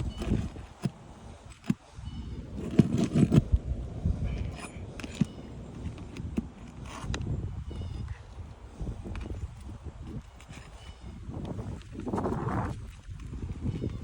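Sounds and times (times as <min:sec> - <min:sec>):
knocks and scraping on roof shingles: 0:00.0 - 0:03.6, 0:08.7 - 0:14.0.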